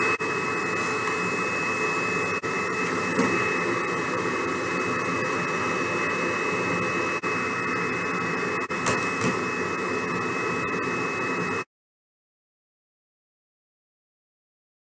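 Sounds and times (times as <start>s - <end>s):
vacuum cleaner motor running: 0.0s - 11.6s.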